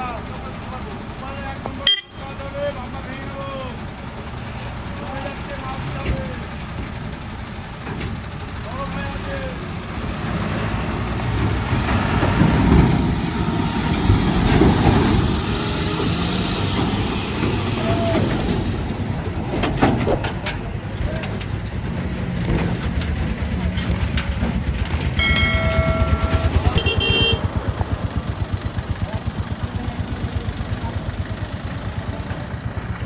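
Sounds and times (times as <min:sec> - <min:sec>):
heavy truck engines rumbling: 0:00.0 - 0:33.0
vehicle horn honking: 0:01.8 - 0:02.2, 0:25.2 - 0:27.6.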